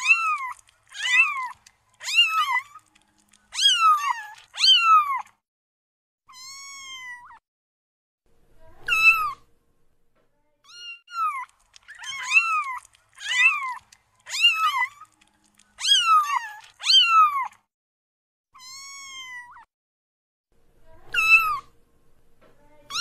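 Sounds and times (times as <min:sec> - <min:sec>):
kitten mewing: 0:00.0 - 0:05.3, 0:08.8 - 0:09.4, 0:10.7 - 0:17.6, 0:21.0 - 0:21.7.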